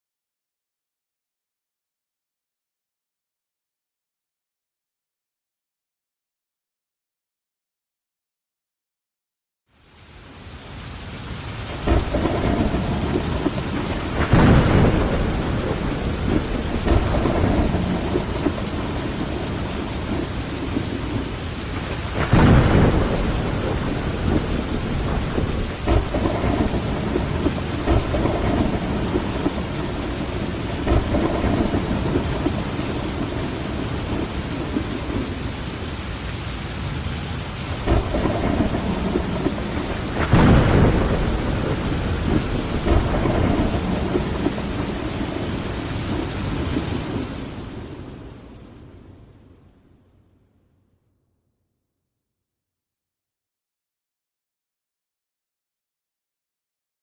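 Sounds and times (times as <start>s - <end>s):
heavy rain on window glass: 9.7s - 49.7s
deep thunder rumbles: 11.3s - 49.6s.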